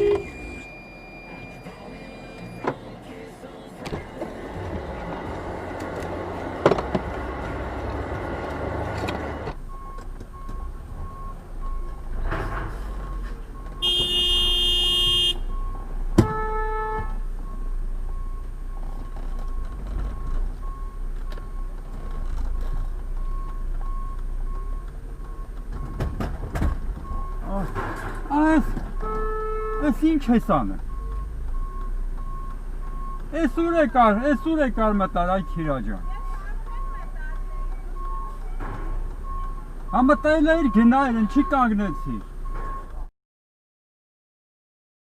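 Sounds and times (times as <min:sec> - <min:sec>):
car horn: 0:00.0 - 0:04.0, 0:13.8 - 0:15.6, 0:16.2 - 0:17.3, 0:29.0 - 0:30.3
road traffic rumble: 0:00.0 - 0:43.1.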